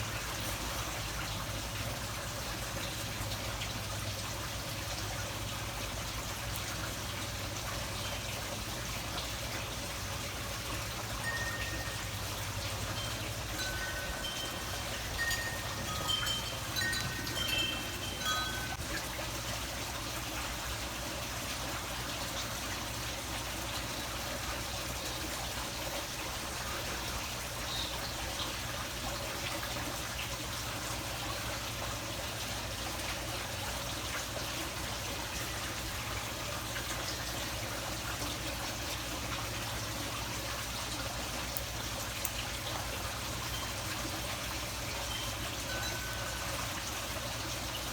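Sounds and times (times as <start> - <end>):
running water hiss: 0.0 - 47.9
high ringing notes: 11.2 - 19.0, 43.5 - 47.2.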